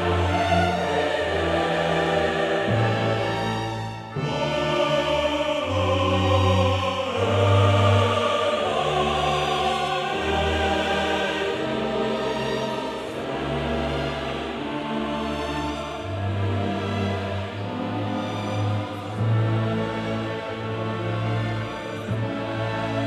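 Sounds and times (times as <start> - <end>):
choir singing held notes: 0.0 - 23.0.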